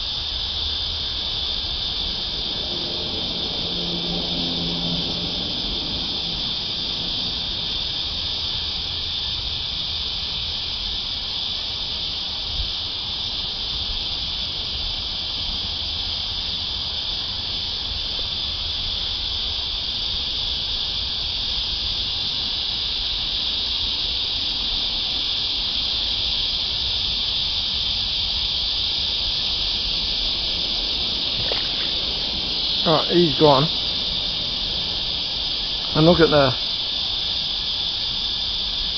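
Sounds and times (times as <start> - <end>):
faint low rumble: 0.0 - 9.9, 28.1 - 38.9
cicadas droning: 0.0 - 38.9.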